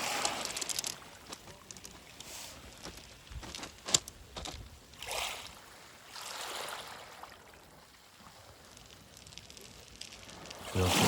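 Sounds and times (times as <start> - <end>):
waves washing over pebbles: 0.0 - 3.6, 4.9 - 11.0
stones knocking together: 0.0 - 4.7.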